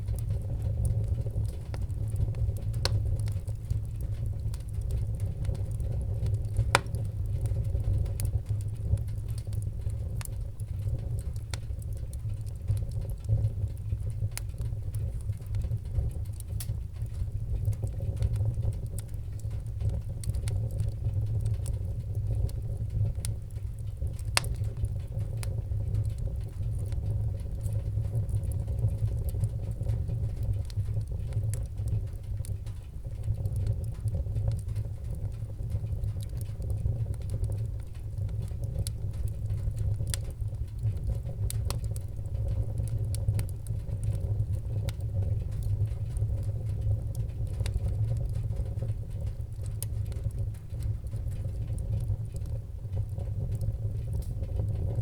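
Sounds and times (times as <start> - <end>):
low rumble of flames: 0.0 - 55.0
wood fire crackling: 0.0 - 55.0
loud pops of fire: 4.5 - 12.1.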